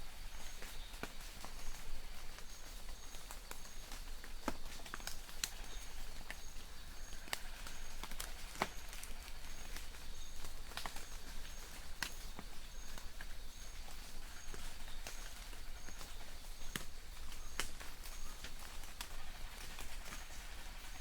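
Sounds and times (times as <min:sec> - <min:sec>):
light rain pattering: 0:00.0 - 0:21.0.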